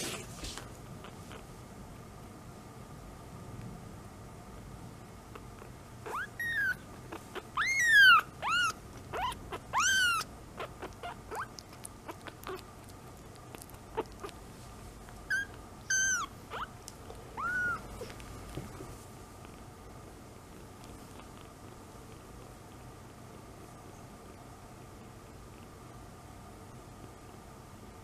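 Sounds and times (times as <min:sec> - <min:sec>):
kitten mewing: 0:05.3 - 0:14.4, 0:15.3 - 0:16.7, 0:17.3 - 0:18.9.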